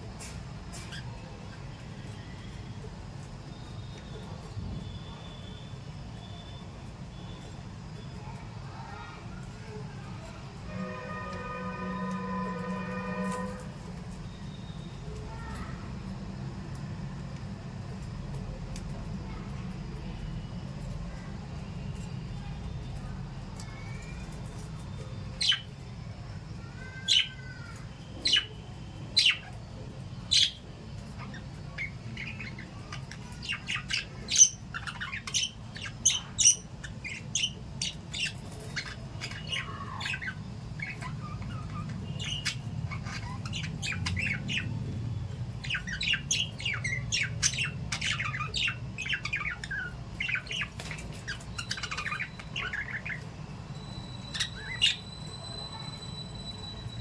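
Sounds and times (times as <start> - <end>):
parrots squawking and chirping: 10.6 - 14.4, 26.8 - 28.5, 29.2 - 29.6, 30.3 - 57.0
steady low hum: 27.6 - 57.0.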